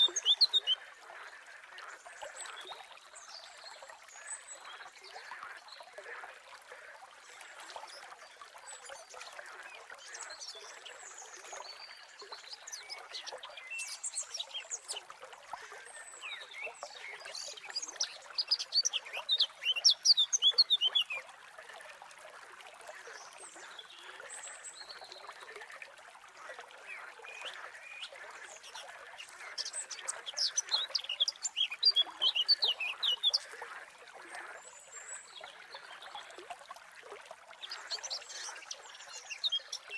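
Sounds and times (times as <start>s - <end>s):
small birds chirping: 0.0s - 1.4s, 29.3s - 33.6s
outdoor nature background: 0.0s - 39.9s.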